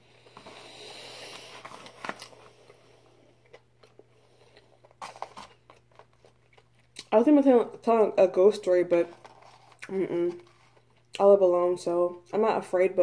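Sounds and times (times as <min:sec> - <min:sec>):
person chewing: 0:02.0 - 0:07.2
paper plate handled: 0:09.0 - 0:10.8.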